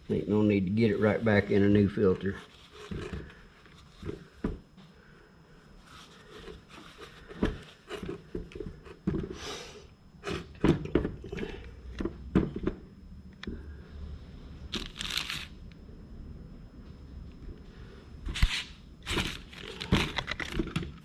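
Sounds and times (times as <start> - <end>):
plastic parts clicking: 18.4 - 21.0.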